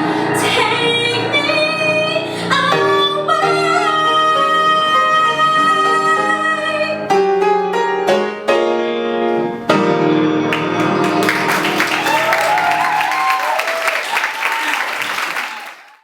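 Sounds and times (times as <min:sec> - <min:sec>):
piano chords ringing: 0:00.0 - 0:13.1
audience applause: 0:10.5 - 0:16.0.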